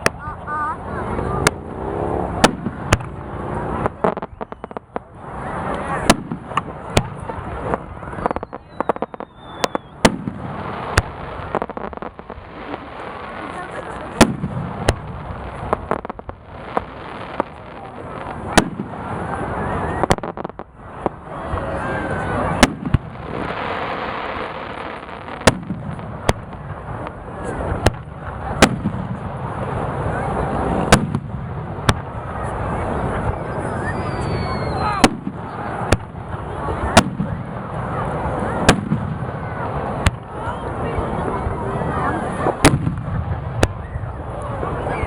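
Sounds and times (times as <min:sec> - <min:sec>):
firework crackling bursts: 0:00.0 - 0:45.0
steady background noise: 0:00.0 - 0:45.0
descending firework whistle: 0:03.8 - 0:13.1, 0:15.6 - 0:25.8, 0:32.0 - 0:36.0.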